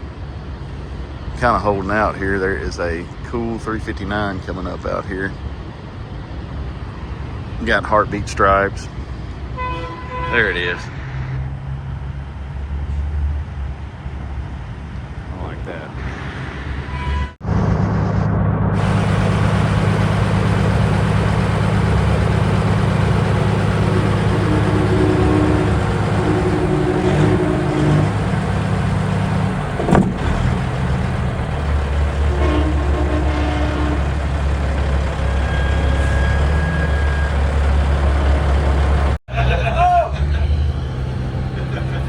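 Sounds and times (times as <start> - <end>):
diesel truck engine running: 17.4 - 42.0.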